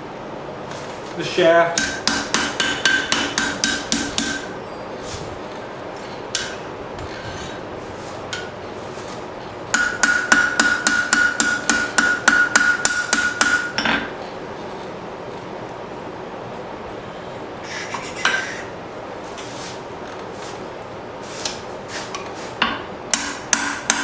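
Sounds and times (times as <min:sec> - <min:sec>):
hammer striking ringing steel: 0:01.8 - 0:04.5, 0:09.7 - 0:14.1, 0:22.6 - 0:24.0.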